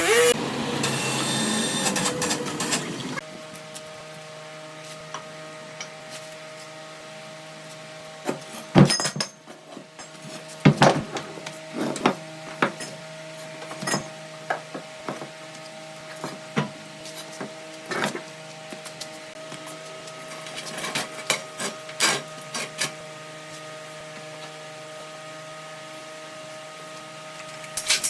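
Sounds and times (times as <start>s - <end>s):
electric machine hum: 0.0s - 3.3s.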